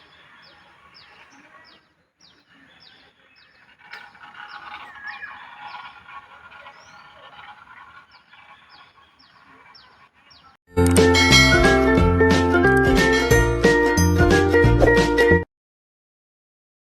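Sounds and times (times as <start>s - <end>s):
birds chirping: 0.0s - 11.8s.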